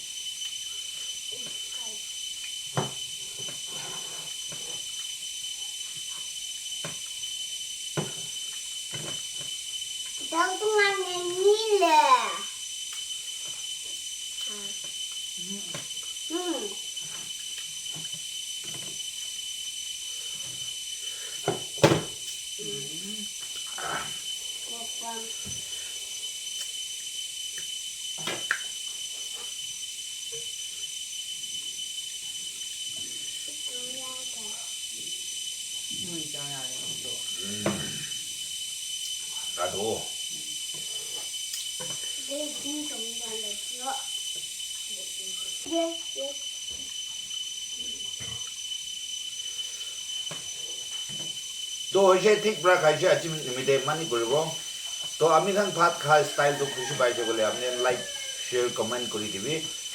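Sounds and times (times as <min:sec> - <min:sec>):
faint high whine: 0:00.0 - 0:59.9.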